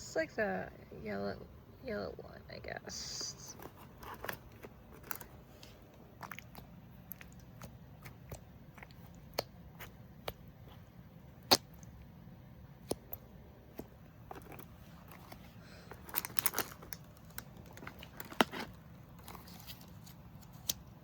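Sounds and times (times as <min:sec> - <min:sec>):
toy packaging crinkling: 0:03.4 - 0:09.2, 0:14.3 - 0:20.7.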